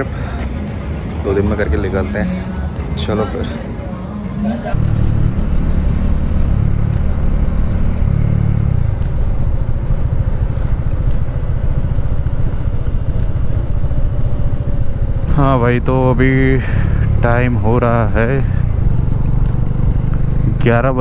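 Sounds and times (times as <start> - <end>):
motorcycle engine rumbling: 4.6 - 21.0.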